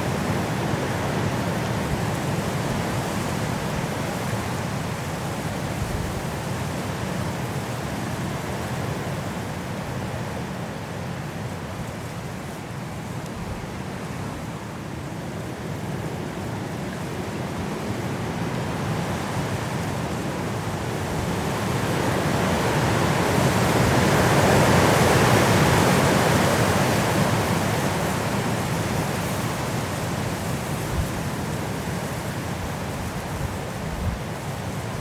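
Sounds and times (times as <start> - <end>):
wind blowing through trees: 0.0 - 35.0.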